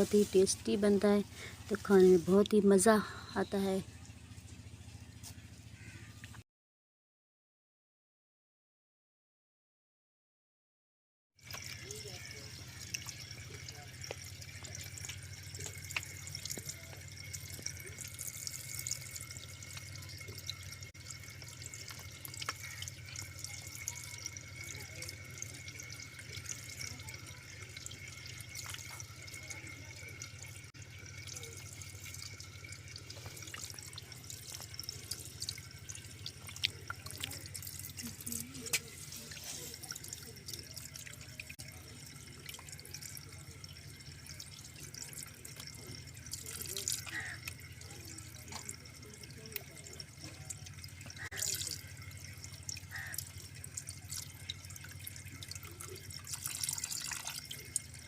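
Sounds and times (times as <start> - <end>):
water running and dripping: 0.0 - 5.9, 11.4 - 58.0
steady low hum: 11.5 - 58.0.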